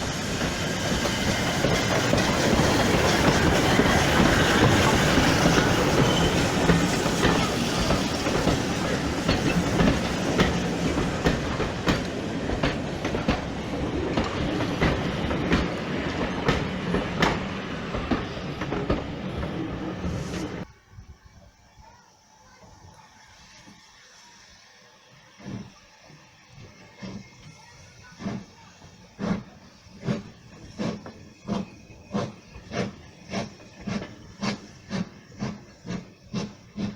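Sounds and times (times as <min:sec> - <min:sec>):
train wheels rumbling: 0:00.0 - 0:20.7, 0:22.6 - 0:36.9
wheels clicking over rail joints: 0:00.6 - 0:19.8.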